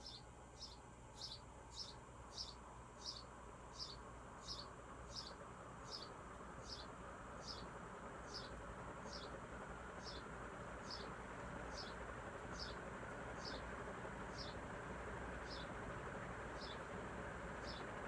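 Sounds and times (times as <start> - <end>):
ceiling fan air rush: 0.3 - 18.0.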